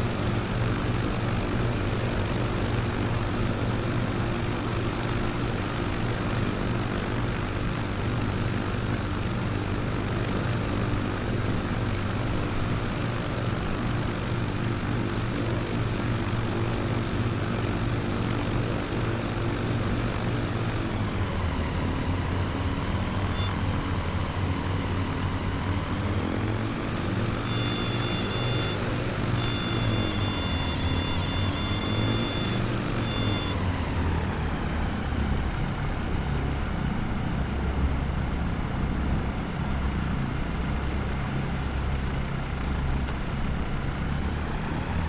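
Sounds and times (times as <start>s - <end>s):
propeller aircraft engine: 0.0s - 45.0s
thin high tone: 27.4s - 33.6s.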